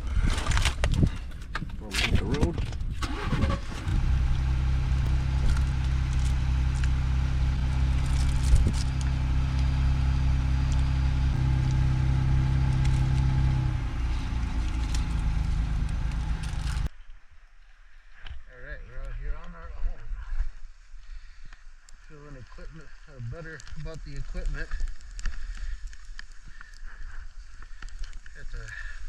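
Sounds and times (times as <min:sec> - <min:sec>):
car engine running: 0:03.0 - 0:16.9.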